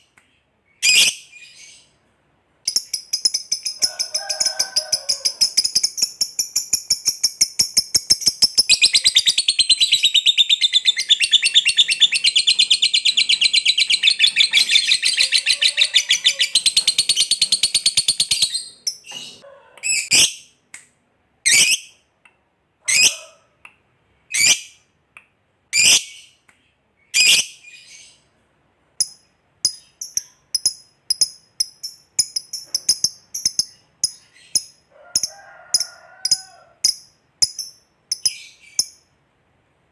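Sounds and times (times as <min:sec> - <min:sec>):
lovebird chattering trill: 0:02.7 - 0:19.0.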